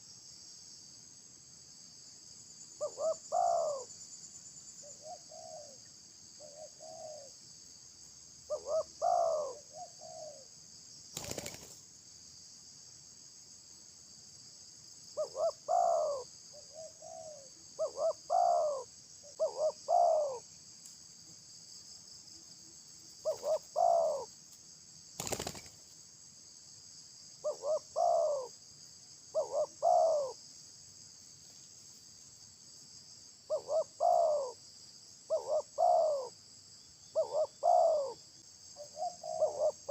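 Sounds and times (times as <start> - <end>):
insects droning: 0.0 - 39.9
dove cooing: 2.8 - 3.9, 4.8 - 5.8, 6.4 - 7.3, 8.5 - 10.4, 15.2 - 20.4, 23.2 - 24.3, 27.4 - 28.5, 29.3 - 30.4, 33.5 - 34.6, 35.3 - 36.3, 37.1 - 38.2, 38.8 - 39.9.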